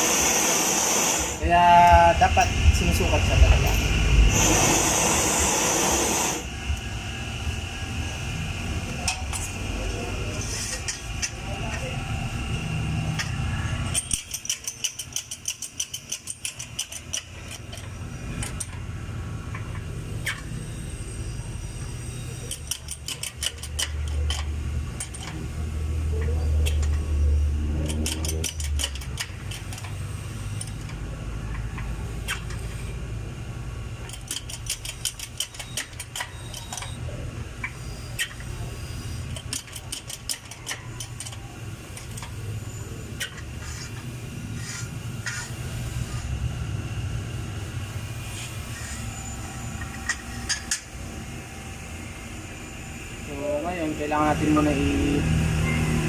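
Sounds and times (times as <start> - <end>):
low machine hum: 0.0 - 14.4
rapid metallic clicking: 13.9 - 18.8, 27.8 - 31.0, 34.0 - 37.0.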